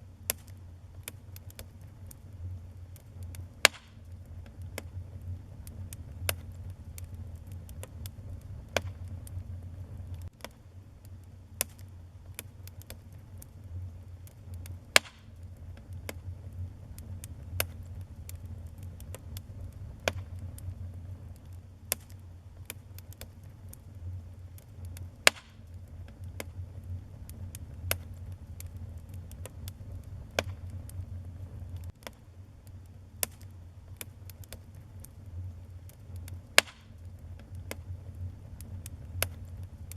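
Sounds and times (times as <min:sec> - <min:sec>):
fire crackling and popping: 0:00.0 - 0:39.9
fire flames rumbling: 0:00.0 - 0:39.9.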